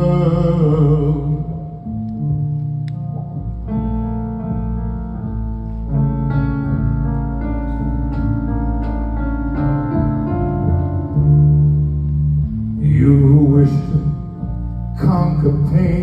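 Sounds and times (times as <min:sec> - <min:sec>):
piano notes and chords: 0:00.0 - 0:16.0
sustained low bass: 0:00.0 - 0:16.0.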